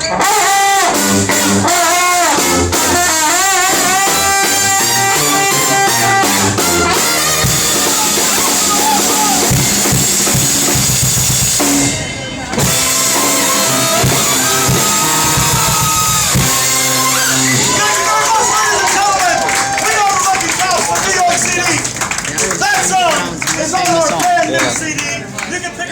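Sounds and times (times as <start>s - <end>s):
brass band playing: 0.0s - 25.9s
drum hits: 1.0s - 17.9s.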